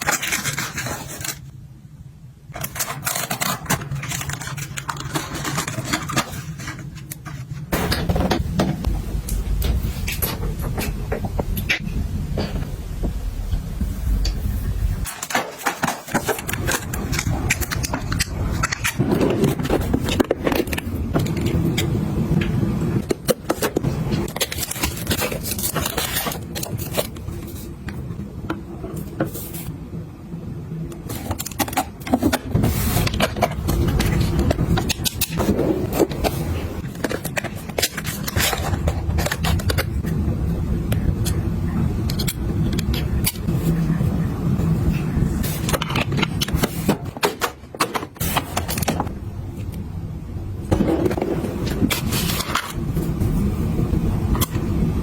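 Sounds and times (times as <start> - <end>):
steady low rumble: 7.7 - 15.1.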